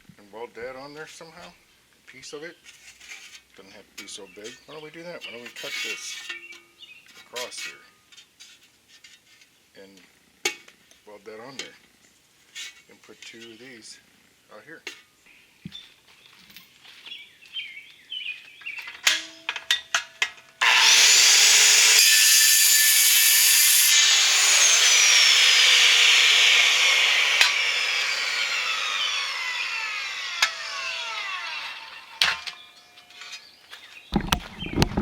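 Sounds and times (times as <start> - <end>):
power tool cutting metal: 20.6 - 33.4.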